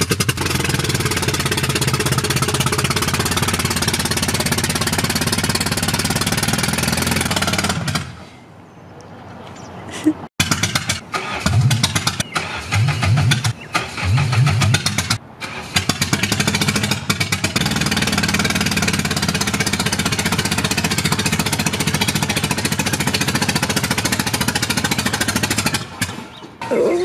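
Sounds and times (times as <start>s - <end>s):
car engine cranking: 0.0s - 8.2s, 10.4s - 26.8s
car engine idling: 0.0s - 8.2s, 10.4s - 26.4s.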